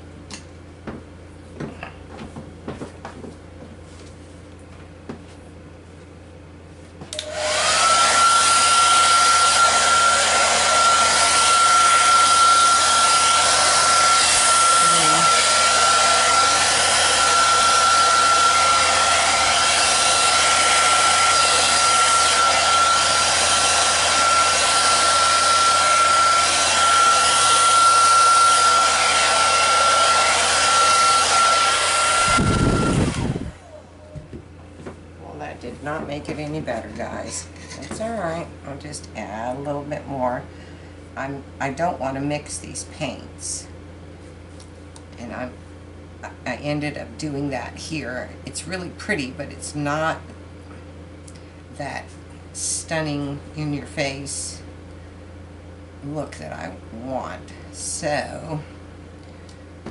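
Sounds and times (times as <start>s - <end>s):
hair dryer whining: 7.1s - 40.5s, 46.3s - 50.4s, 51.3s - 54.7s, 56.1s - 58.7s, 59.4s - 59.9s.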